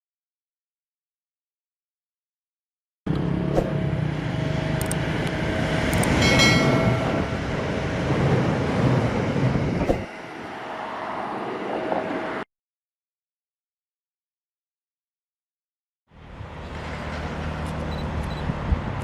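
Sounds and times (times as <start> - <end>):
train wheels rumbling on rail: 3.1 - 12.4, 16.2 - 19.0
high-pitched ringing: 6.0 - 7.6.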